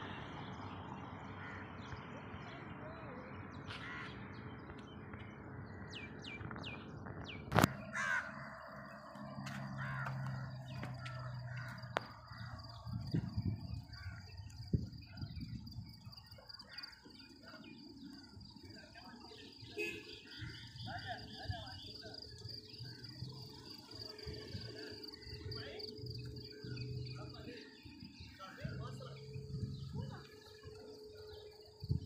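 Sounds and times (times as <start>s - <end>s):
birds calling: 3.7s - 32.0s
low hum: 22.4s - 32.0s.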